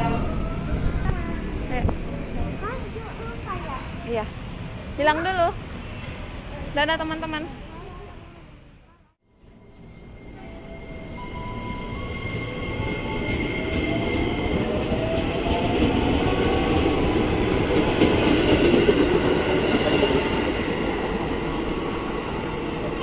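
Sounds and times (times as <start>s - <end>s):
train wheel noise: 9.4s - 23.0s.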